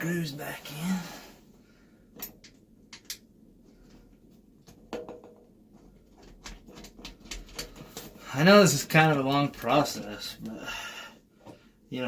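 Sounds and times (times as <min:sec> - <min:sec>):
parts clicking and tapping: 0:02.2 - 0:03.3, 0:06.1 - 0:08.2.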